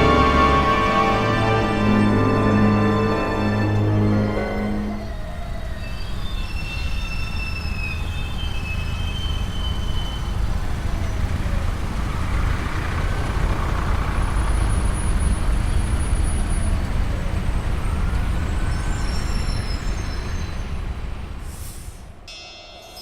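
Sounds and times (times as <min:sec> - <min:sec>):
road traffic rumble: 0:00.0 - 0:22.2
faint high squeals: 0:03.0 - 0:11.6, 0:16.4 - 0:21.0.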